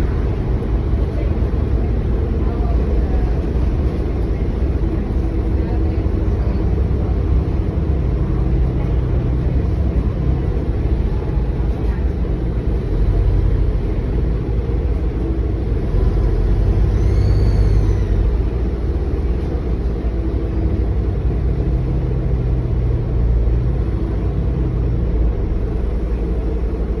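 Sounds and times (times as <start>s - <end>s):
bus engine rumbling: 0.0s - 27.0s.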